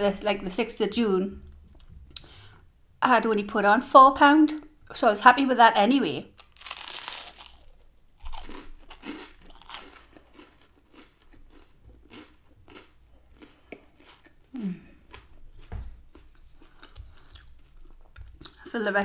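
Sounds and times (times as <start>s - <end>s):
crunchy chewing: 6.4s - 18.6s
person humming mm: 14.5s - 15.0s.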